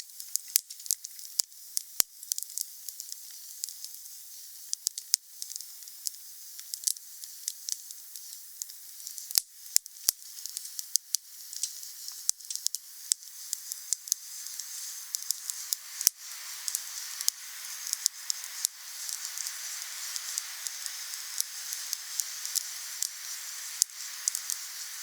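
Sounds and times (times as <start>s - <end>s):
wood fire crackling: 10.4s - 25.0s.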